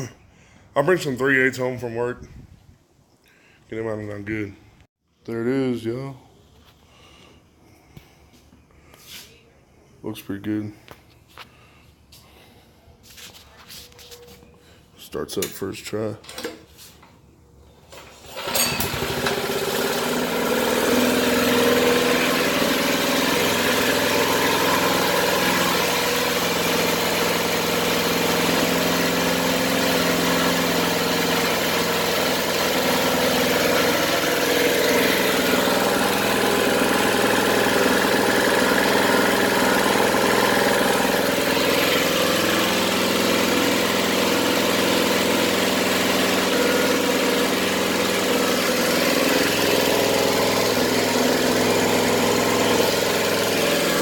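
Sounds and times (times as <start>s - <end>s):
small engine starting and idling: 10.8s - 54.0s.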